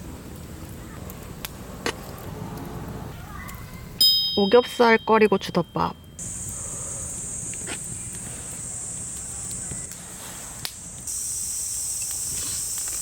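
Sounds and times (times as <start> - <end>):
crickets trilling: 6.1 - 13.0.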